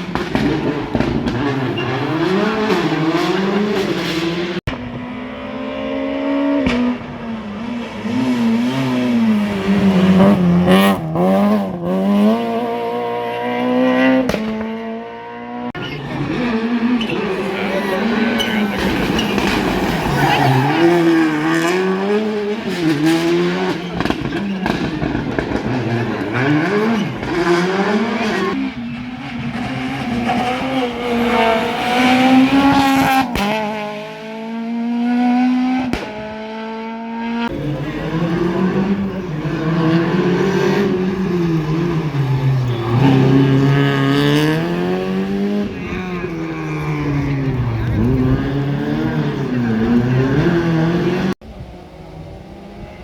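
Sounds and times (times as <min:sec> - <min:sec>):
rally car engines revving: 0:00.0 - 0:53.0.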